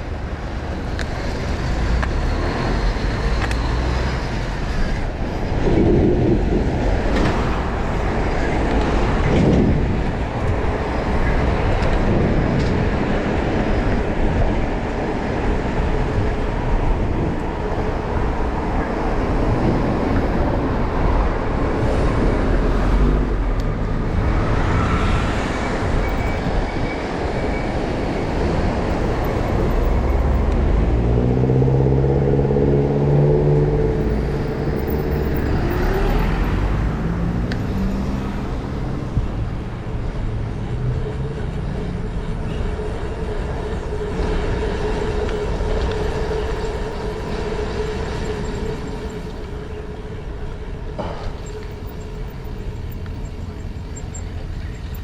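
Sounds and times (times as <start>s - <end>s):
vehicle engine rumbling: 0.0s - 55.0s
steady whine: 38.4s - 55.0s.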